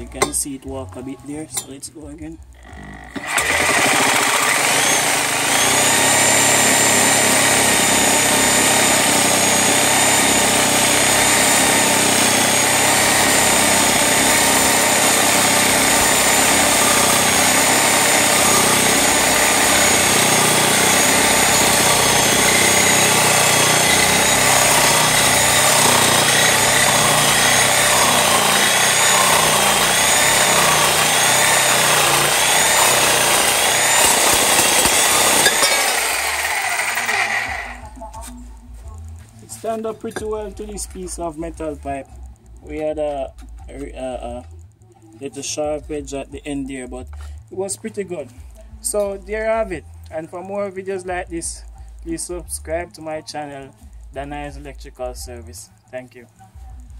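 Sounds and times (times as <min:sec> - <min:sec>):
electric saw cutting metal pipe: 0:02.6 - 0:38.3.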